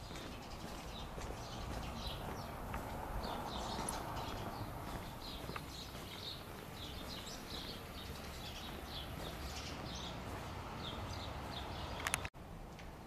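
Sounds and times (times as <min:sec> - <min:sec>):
small birds chirping: 0:00.0 - 0:12.3
sharp clicks: 0:12.0 - 0:12.3.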